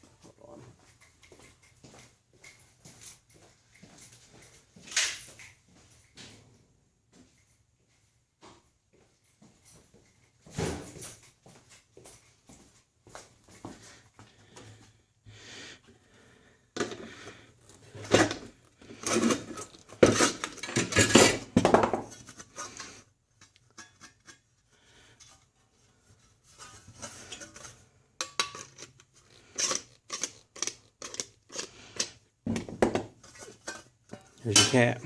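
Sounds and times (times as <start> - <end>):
sheet metal clattering and scraping: 33.2 - 35.0
sharp metal clanks: 33.7 - 35.0.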